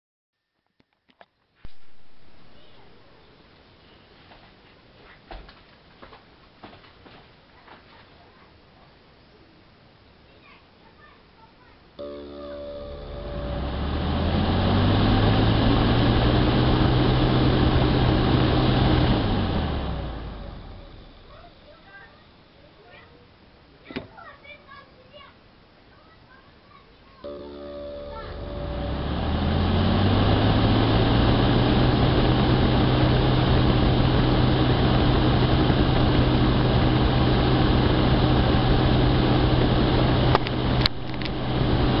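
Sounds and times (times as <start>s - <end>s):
electric fan running: 12.0s - 22.0s, 27.2s - 42.0s.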